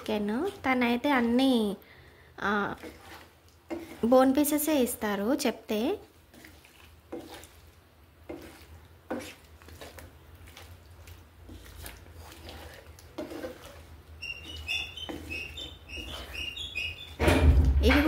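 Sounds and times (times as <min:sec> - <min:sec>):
utensil scraping in frying pan: 0:00.0 - 0:01.8, 0:02.4 - 0:18.0
small birds chirping: 0:14.2 - 0:17.2.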